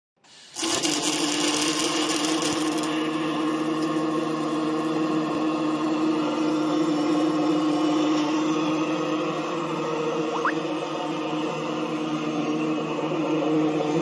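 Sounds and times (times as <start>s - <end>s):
welding arc crackling buzz: 0.5s - 3.0s.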